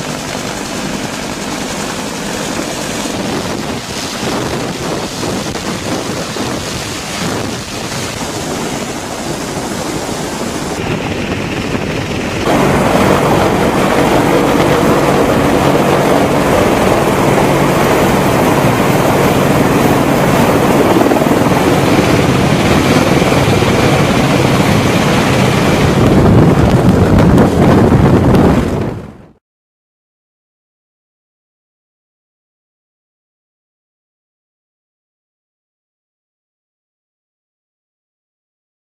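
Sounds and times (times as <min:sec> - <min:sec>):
engine drone: 0:00.0 - 0:28.8
wind buffeting microphone: 0:00.0 - 0:29.4.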